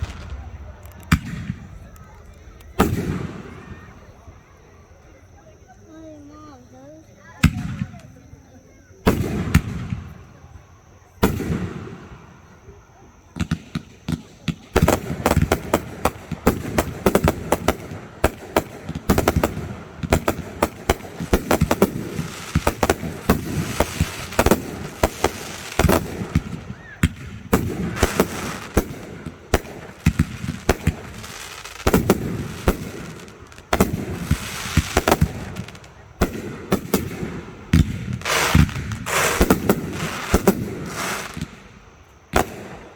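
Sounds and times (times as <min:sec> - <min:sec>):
fireworks bursting and crackling: 0:00.0 - 0:04.2, 0:13.4 - 0:42.9.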